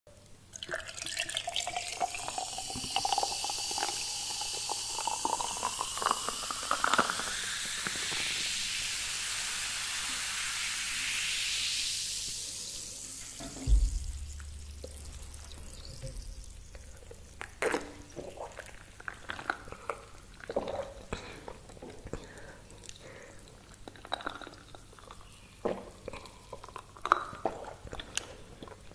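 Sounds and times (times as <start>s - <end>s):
liquid pouring into a container: 0.5s - 22.5s
sharp thump: 13.4s - 15.3s.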